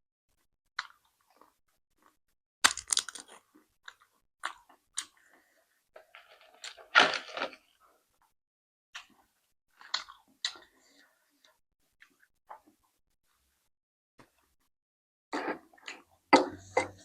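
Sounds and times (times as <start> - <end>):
person chewing crunchy food: 0.8 - 7.5.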